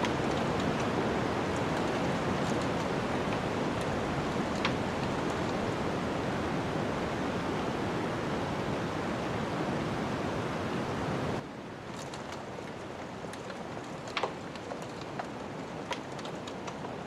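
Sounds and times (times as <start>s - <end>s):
wood fire crackling: 0.0s - 8.0s, 11.8s - 17.0s
snowstorm wind rushing: 0.0s - 11.4s.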